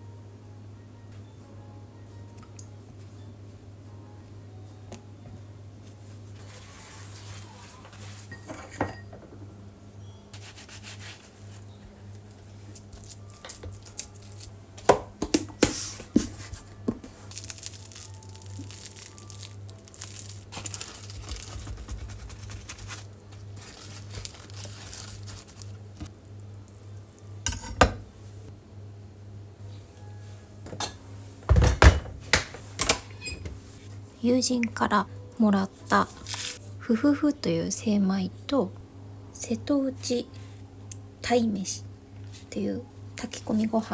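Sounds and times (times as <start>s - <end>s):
dishes and utensils clinking: 7.9s - 10.4s, 27.5s - 28.2s, 30.6s - 33.6s.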